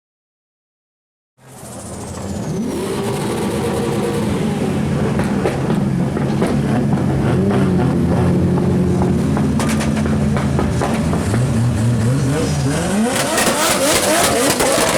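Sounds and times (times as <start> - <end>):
car engine revving: 1.4 - 14.9
exhaust pops and bangs: 8.5 - 14.9.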